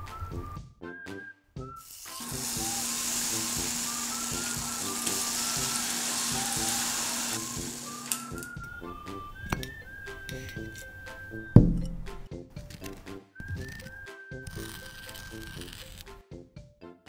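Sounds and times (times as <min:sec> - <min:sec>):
fruit sizzling in butter in a pan: 0:01.8 - 0:08.6.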